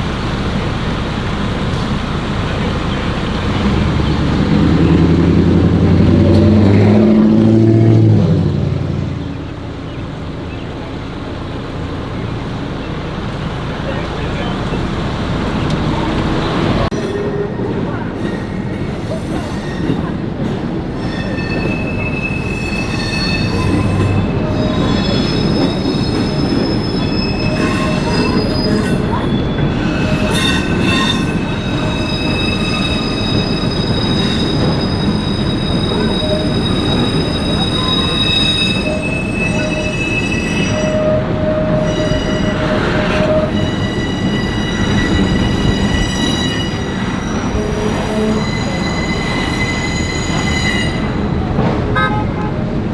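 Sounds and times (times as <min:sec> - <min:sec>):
train rumbling past: 0:00.0 - 0:52.9
steel wheels squealing: 0:12.1 - 0:52.4.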